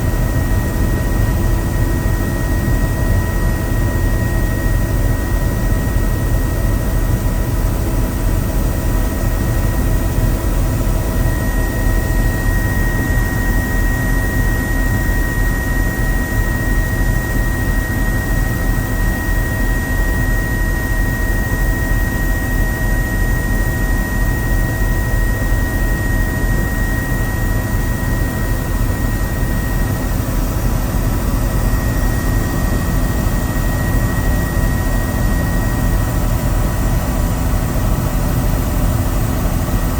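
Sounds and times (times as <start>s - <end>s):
helicopter engine and rotors: 0.0s - 39.9s
high whine: 17.6s - 39.9s.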